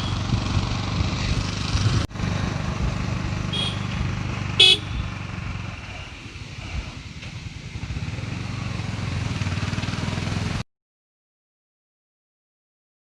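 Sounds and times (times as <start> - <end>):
motorcycle engine running: 0.0 - 10.6
short horn beep: 3.5 - 4.0, 4.6 - 5.1.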